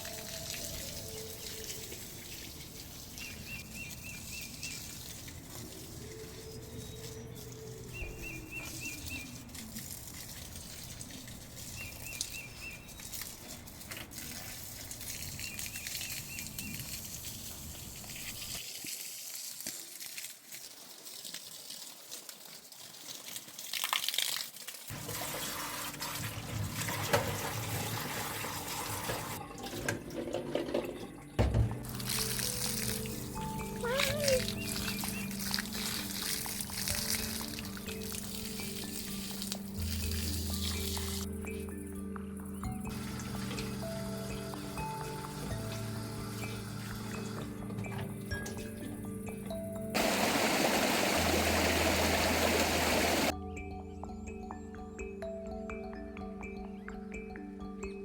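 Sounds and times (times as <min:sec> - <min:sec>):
running water hissing: 0:00.0 - 0:23.8, 0:31.8 - 0:41.4, 0:42.6 - 0:48.4, 0:50.0 - 0:53.3.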